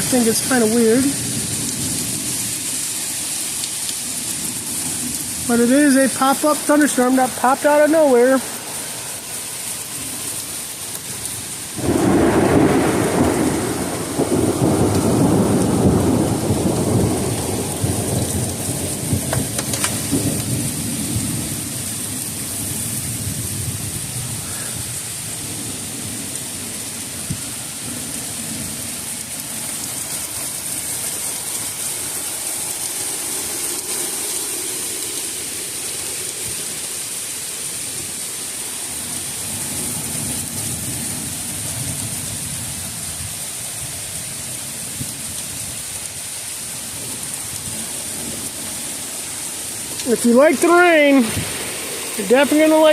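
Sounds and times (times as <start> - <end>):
thunderclap rumbling: 0.0 - 2.8, 11.7 - 29.2, 49.7 - 52.9
steady rain: 0.0 - 52.9.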